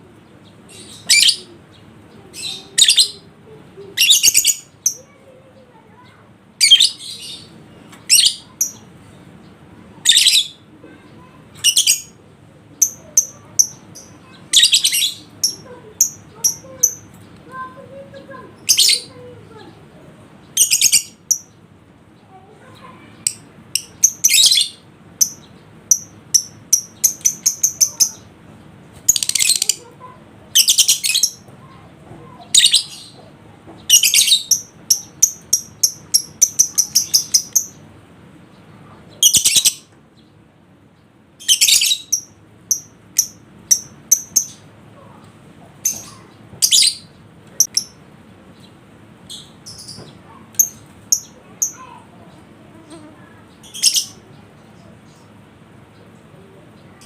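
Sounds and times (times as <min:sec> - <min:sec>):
sharp high bird chirps: 0:33.9 - 0:37.8.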